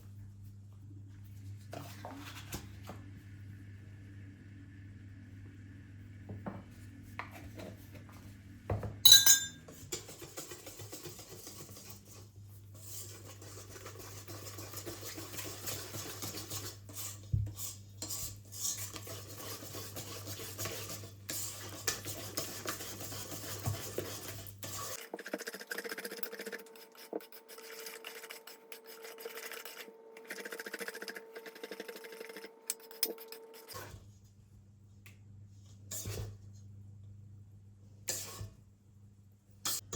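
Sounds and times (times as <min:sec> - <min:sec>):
utensils scraping and clinking dishes: 0:09.1 - 0:10.3.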